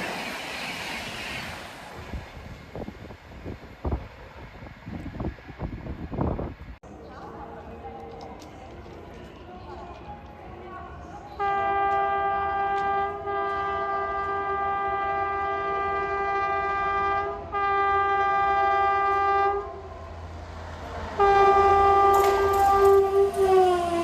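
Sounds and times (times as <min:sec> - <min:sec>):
train rushing past: 0:00.0 - 0:07.4, 0:08.0 - 0:24.0
locomotive horn blasts: 0:11.4 - 0:19.9, 0:21.2 - 0:24.0.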